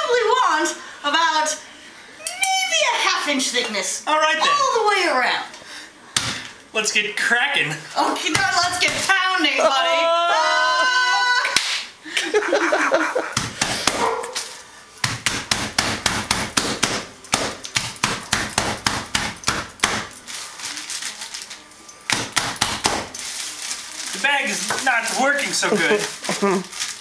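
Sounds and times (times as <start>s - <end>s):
sharp thuds pounding meat: 13.4s - 14.1s, 15.0s - 20.1s, 22.1s - 23.1s.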